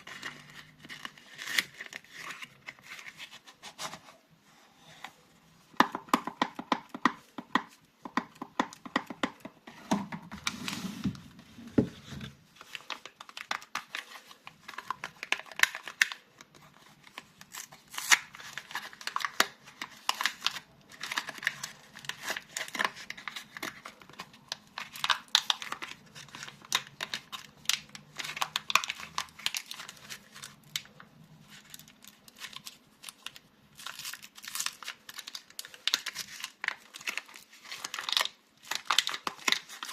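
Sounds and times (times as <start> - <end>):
wrappers crinkling and tearing: 0.0 - 3.9, 12.5 - 39.9.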